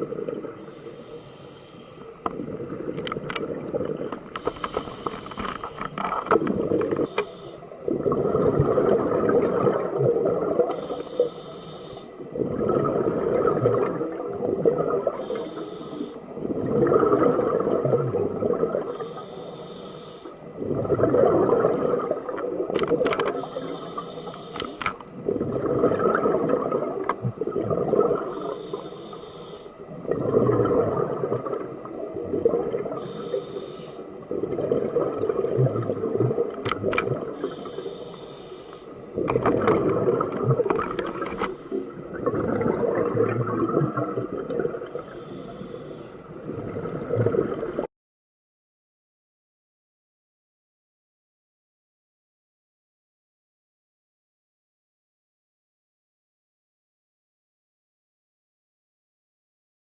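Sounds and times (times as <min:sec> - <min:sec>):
regulator hissing inhale: 0:00.6 - 0:02.2, 0:04.3 - 0:06.0, 0:07.0 - 0:07.8, 0:10.7 - 0:12.2, 0:15.2 - 0:16.3, 0:18.9 - 0:20.4, 0:23.3 - 0:25.0, 0:28.2 - 0:29.8, 0:33.0 - 0:34.2, 0:37.3 - 0:39.0, 0:41.0 - 0:42.0, 0:44.8 - 0:46.3.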